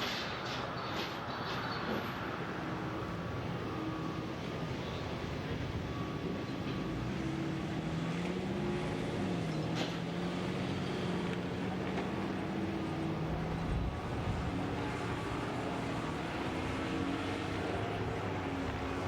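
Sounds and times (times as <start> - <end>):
large engine running: 5.8 - 19.0.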